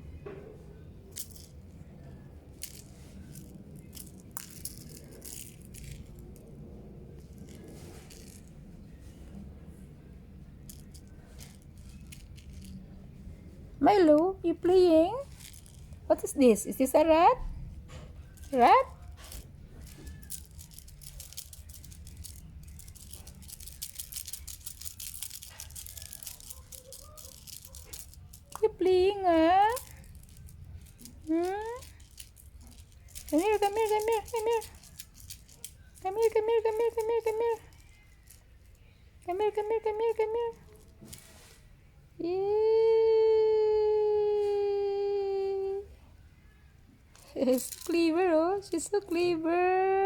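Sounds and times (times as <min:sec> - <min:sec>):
toy rattling and clicking: 0:01.0 - 0:08.7, 0:10.6 - 0:13.0, 0:14.1 - 0:17.0, 0:18.1 - 0:41.5, 0:47.1 - 0:49.6.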